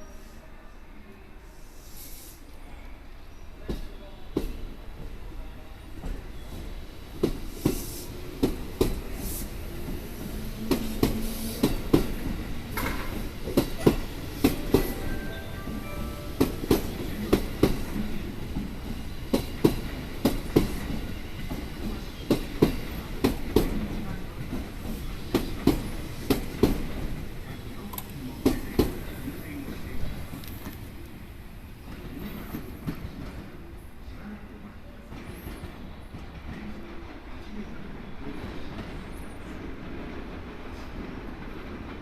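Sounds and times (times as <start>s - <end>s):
train wheels clacking over rail joints: 10.6s - 15.0s.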